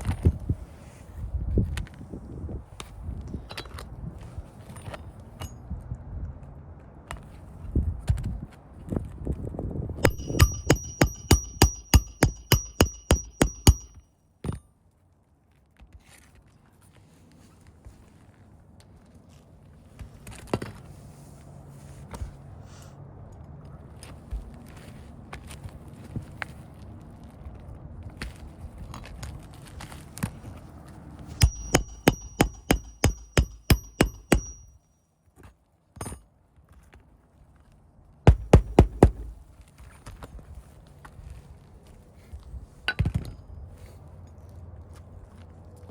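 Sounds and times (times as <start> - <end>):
hammer striking nail: 10.0 - 14.0, 31.4 - 34.7, 38.3 - 39.4.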